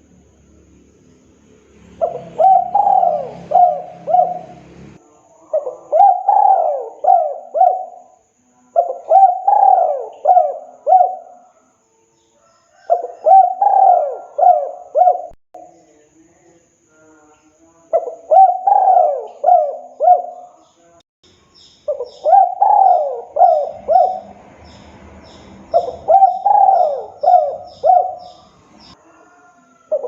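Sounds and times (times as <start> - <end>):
dove cooing: 2.0 - 8.2, 8.8 - 11.6, 12.7 - 15.4, 17.9 - 20.6, 21.9 - 30.0.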